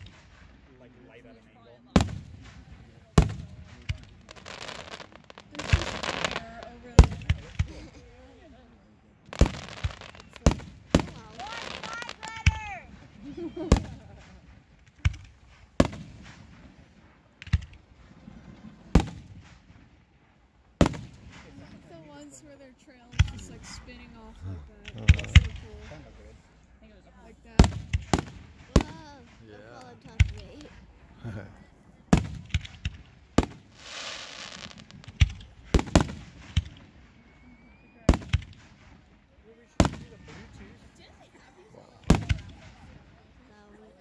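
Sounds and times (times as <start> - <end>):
firework shells bursting: 2.0 - 7.8, 9.2 - 22.0, 27.4 - 31.1, 32.1 - 40.8
firework hiss: 2.0 - 8.2, 9.3 - 20.0, 32.1 - 37.3.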